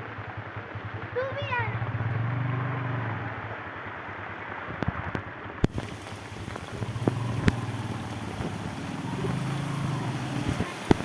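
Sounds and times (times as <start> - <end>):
steady rain: 0.0 - 11.0
raindrops knocking on microphone: 4.7 - 11.0
vehicle engine hum: 5.7 - 11.0.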